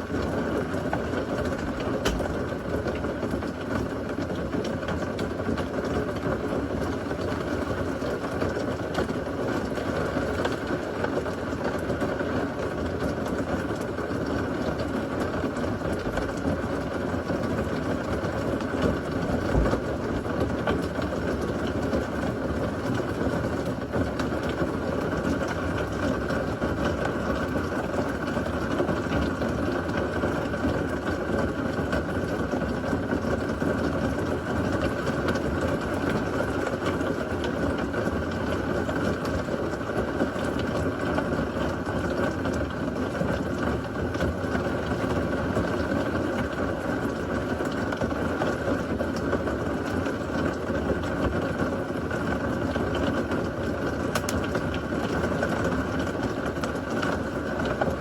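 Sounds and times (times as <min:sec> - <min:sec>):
heavy rain: 0:00.0 - 0:58.0
low thump: 0:19.5 - 0:19.8.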